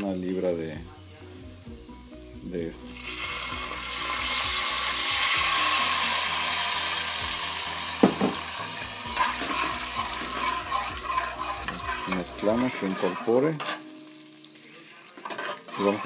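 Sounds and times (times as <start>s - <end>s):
wine sizzling in hot oil: 0.0s - 16.0s
metal spoon knocking pan: 8.0s - 8.5s.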